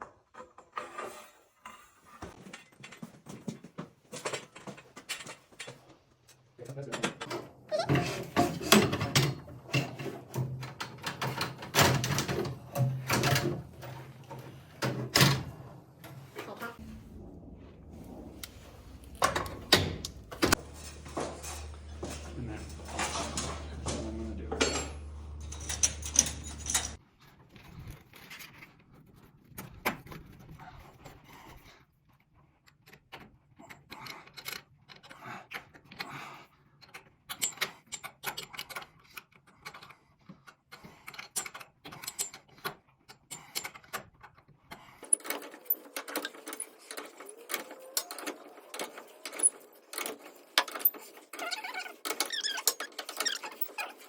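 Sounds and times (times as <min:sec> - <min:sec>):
clicks and metallic rattles: 0:02.4 - 0:16.2, 0:18.4 - 0:27.0, 0:45.0 - 0:54.0
steady low hum: 0:16.8 - 0:27.0.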